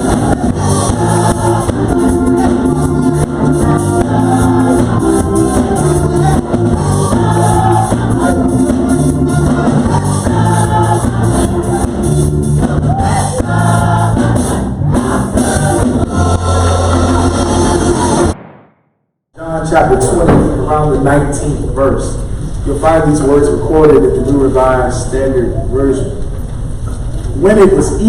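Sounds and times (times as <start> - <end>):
gospel choir singing with instruments: 0.0 - 18.4.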